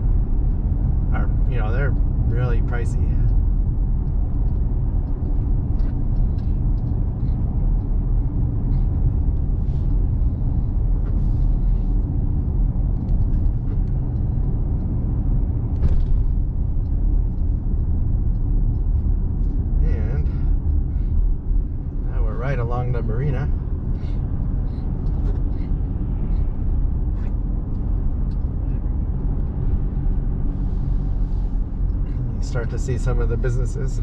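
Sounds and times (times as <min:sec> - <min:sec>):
truck engine and tyre rumble: 0:00.0 - 0:34.0.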